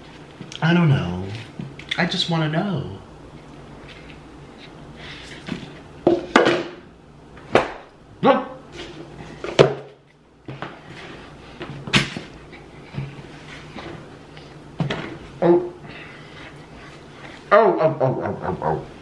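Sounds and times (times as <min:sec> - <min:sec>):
person humming: 0:17.5 - 0:19.0.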